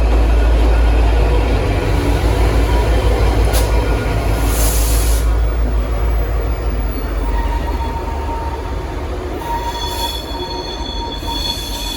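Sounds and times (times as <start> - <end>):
diesel locomotive engine rumble: 0.0 - 11.9
air hiss: 4.4 - 5.3
train wheels squealing: 4.4 - 11.9.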